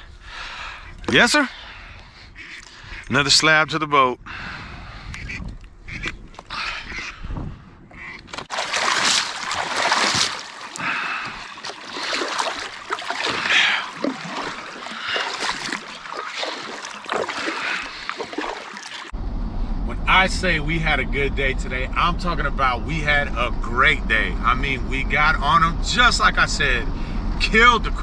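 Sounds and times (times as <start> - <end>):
water splashing and trickling: 8.2 - 19.2.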